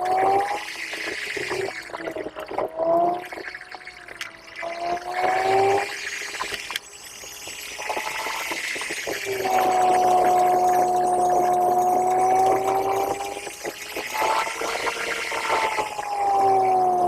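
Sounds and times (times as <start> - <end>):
car engine whine accelerating: 9.2 - 17.0.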